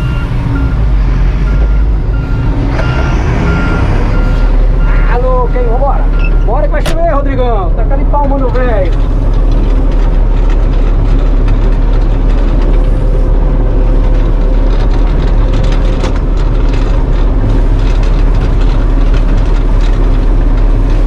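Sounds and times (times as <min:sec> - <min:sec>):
diesel engine rumbling: 0:00.0 - 0:21.0.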